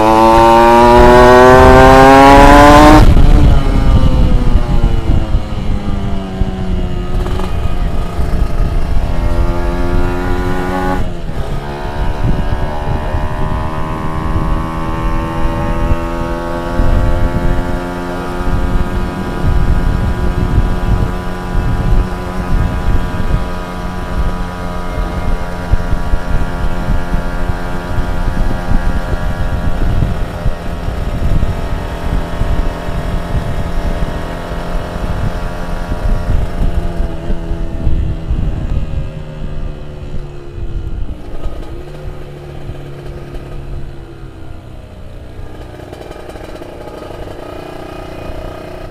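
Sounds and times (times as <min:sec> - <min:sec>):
two-stroke motorcycle engine revving: 0:00.0 - 0:48.9.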